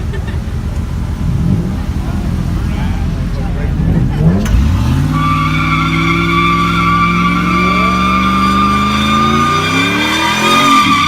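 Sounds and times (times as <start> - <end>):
car engine at high revs: 0.0 - 11.0
car tires squealing: 3.9 - 11.0.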